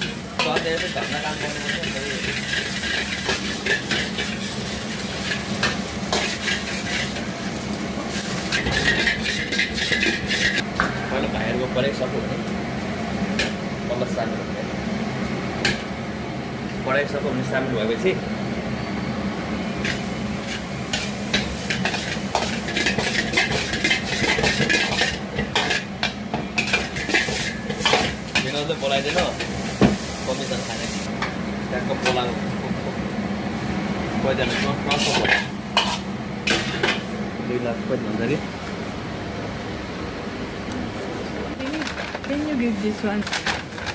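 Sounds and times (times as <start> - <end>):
food sizzling in a hot pan: 0.0 - 10.6, 19.7 - 32.5
metal spatula scraping wok: 8.2 - 10.6, 19.8 - 25.9, 34.4 - 37.0.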